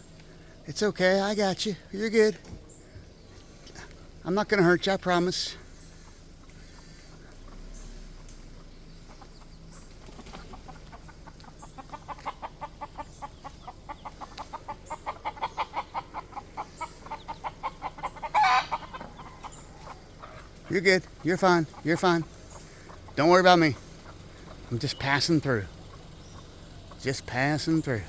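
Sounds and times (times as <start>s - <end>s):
hen clucking rapidly: 0.0s - 28.0s
hen squawk: 10.3s - 24.7s.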